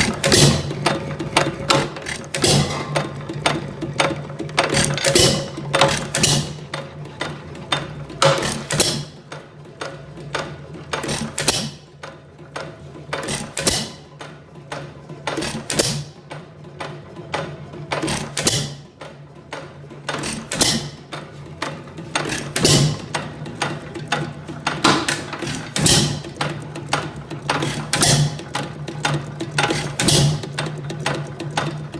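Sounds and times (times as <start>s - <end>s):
hit-and-miss engine firing: 0.0s - 3.1s, 22.2s - 23.4s
mechanical clicking: 0.0s - 31.9s.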